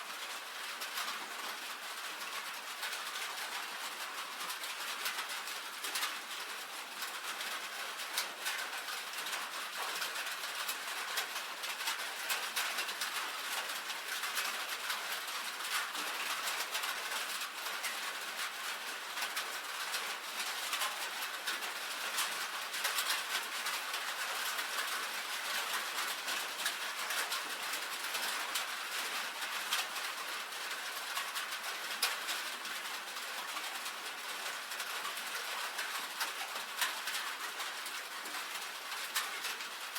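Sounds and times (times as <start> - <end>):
rain on a tin roof: 0.0 - 39.9.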